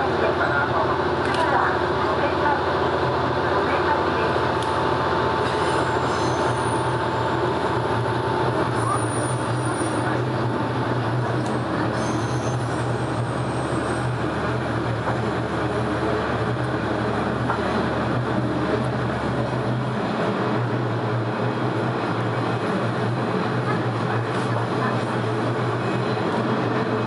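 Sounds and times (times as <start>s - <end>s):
railcar engine drone: 0.0s - 27.0s
short high wheel squeals: 5.5s - 7.0s, 11.9s - 12.8s
thin wheel squeal: 5.6s - 6.8s, 12.0s - 12.6s.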